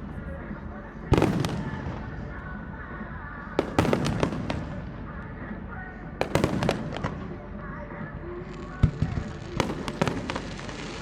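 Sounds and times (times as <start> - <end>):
fireworks bursting: 1.1 - 2.3, 3.6 - 11.0.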